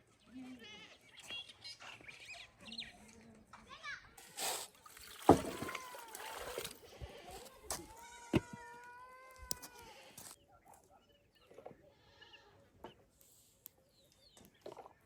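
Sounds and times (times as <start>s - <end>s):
goats bleating: 7.0s - 10.3s.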